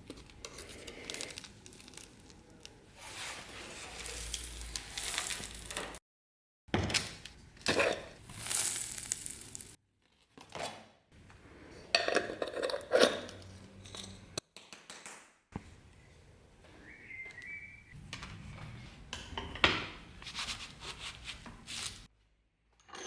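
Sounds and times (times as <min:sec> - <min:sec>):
metal objects clinking and rattling: 0:04.0 - 0:06.0, 0:07.7 - 0:09.8, 0:12.0 - 0:14.4.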